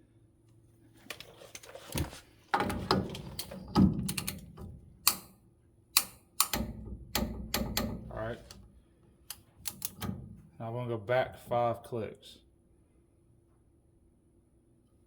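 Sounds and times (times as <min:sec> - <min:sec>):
torque wrench clicking: 0:04.1 - 0:05.3, 0:06.0 - 0:08.2, 0:09.3 - 0:10.2.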